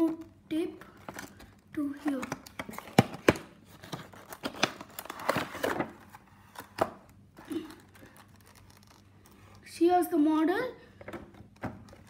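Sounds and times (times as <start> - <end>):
packaging rustling: 0.8 - 9.6.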